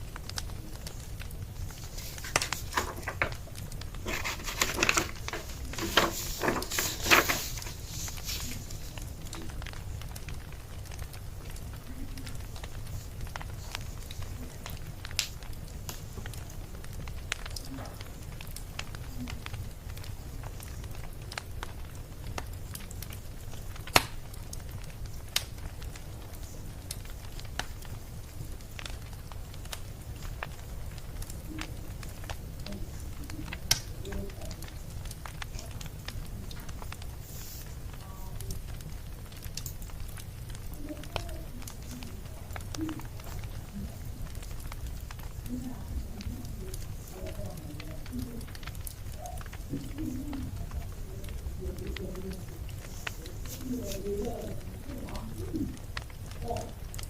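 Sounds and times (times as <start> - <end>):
wood fire crackling: 0.0 - 57.0
household rustling and knocking: 1.8 - 8.9.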